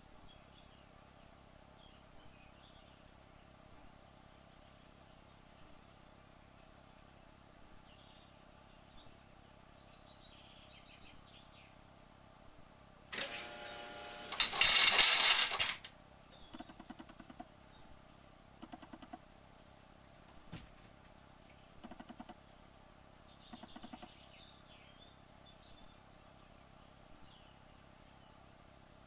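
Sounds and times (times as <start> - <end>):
small motor whirring: 13.2 - 15.9.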